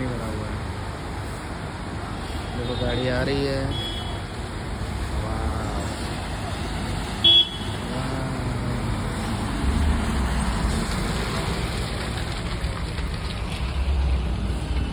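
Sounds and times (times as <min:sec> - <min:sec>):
car horn toot: 0:07.2 - 0:07.9.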